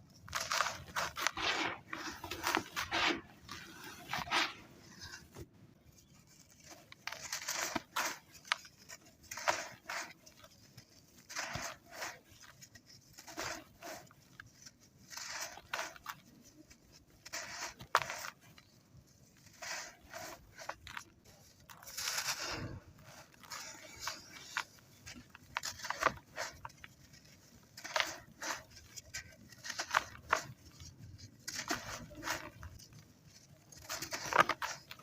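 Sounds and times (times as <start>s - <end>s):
sand clumps crunching: 0.3s - 5.3s, 19.2s - 35.0s.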